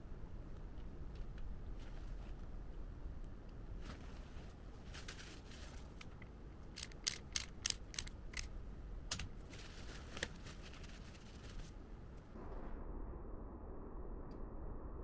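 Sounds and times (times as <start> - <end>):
sharp clicks: 6.7 - 8.5.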